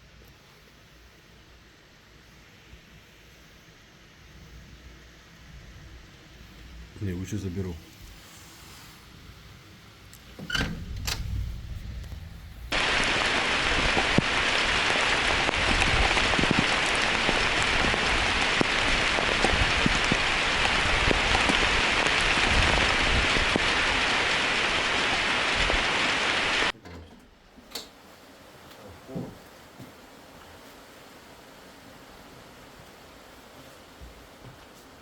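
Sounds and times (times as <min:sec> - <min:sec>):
heavy rain pouring: 0:10.4 - 0:26.8.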